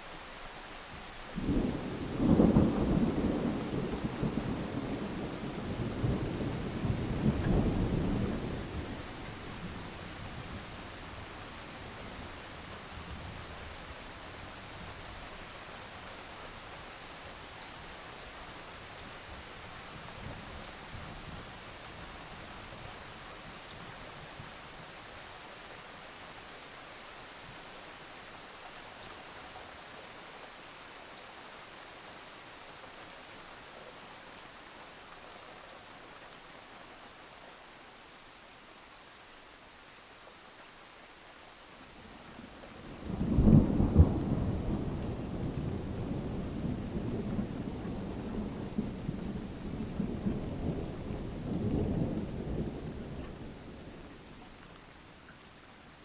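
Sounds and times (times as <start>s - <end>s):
rain hiss: 0.0s - 56.0s.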